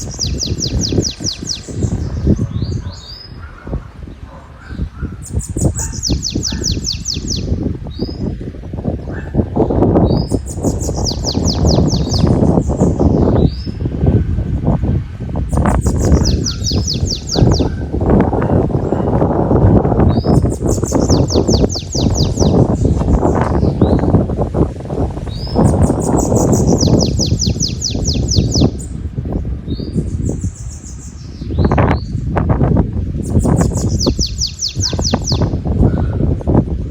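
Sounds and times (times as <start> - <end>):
canary singing: 0.0 - 3.6, 4.7 - 8.3, 9.6 - 13.8, 15.5 - 18.6, 20.0 - 24.2, 25.3 - 29.0, 33.2 - 35.6
wind rumble on microphone: 0.0 - 36.9.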